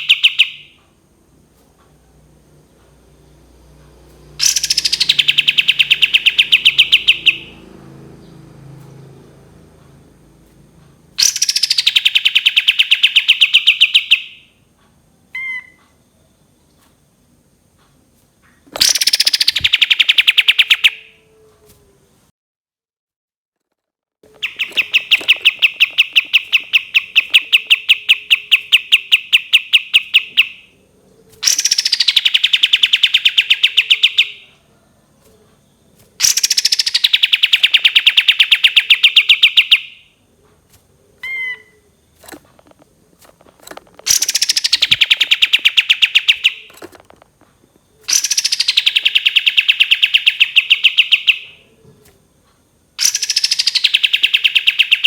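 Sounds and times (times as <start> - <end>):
songbird rapid high chirps: 0.0 - 0.8, 4.4 - 7.6, 11.2 - 14.5, 18.8 - 21.1, 24.3 - 34.6, 35.5 - 40.1, 41.1 - 46.8, 47.7 - 51.6, 53.0 - 55.0.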